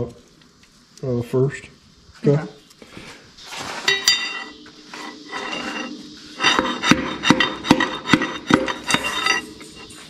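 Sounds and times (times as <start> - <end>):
ringing metal clinks: 3.9 - 4.6.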